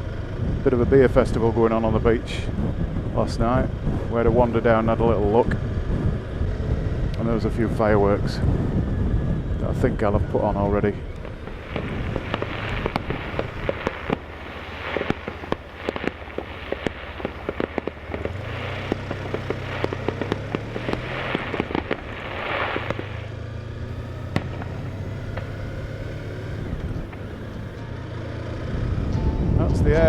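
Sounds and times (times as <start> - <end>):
fireworks cracking and popping: 11.1 - 28.5
fireworks bangs: 11.1 - 28.6
fireworks crackle: 11.1 - 28.7.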